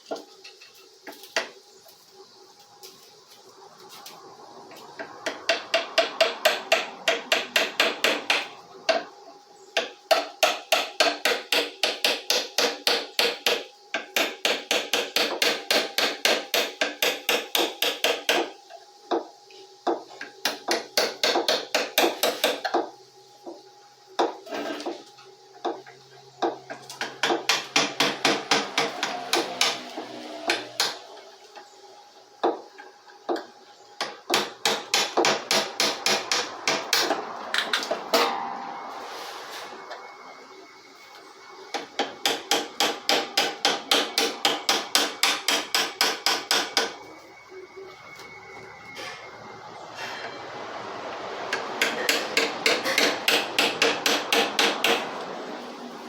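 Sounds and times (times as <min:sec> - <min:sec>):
rapid hammer strikes: 0:05.2 - 0:08.5, 0:09.8 - 0:18.5, 0:20.4 - 0:22.7, 0:27.0 - 0:31.0, 0:34.0 - 0:38.4, 0:41.7 - 0:47.0, 0:51.5 - 0:55.2.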